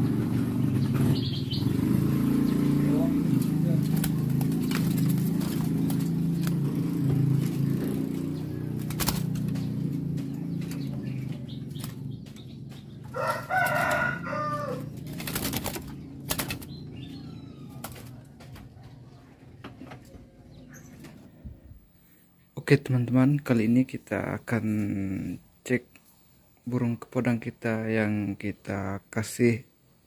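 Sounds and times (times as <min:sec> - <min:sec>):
drawn-out bird call: 0:00.0 - 0:18.2
bird fluttering in a cage: 0:01.9 - 0:18.8.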